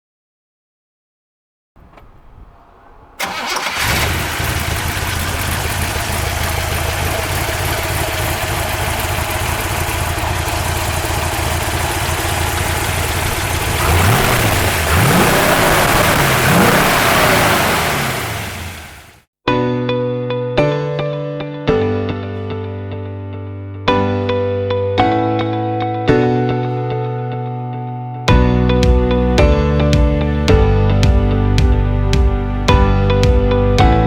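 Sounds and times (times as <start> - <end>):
car engine starting and idling: 1.8 - 19.2
engine revving: 1.8 - 19.2.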